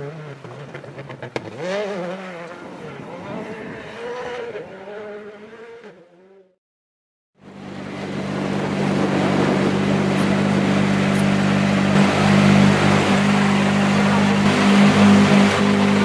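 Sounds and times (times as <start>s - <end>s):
car engine idling: 9.6s - 16.0s.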